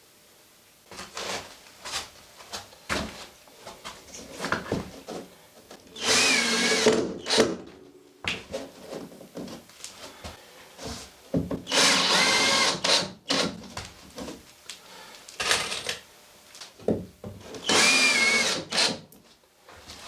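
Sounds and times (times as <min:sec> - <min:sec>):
electric drill whining: 0:05.9 - 0:07.6, 0:11.7 - 0:13.5, 0:17.6 - 0:19.0.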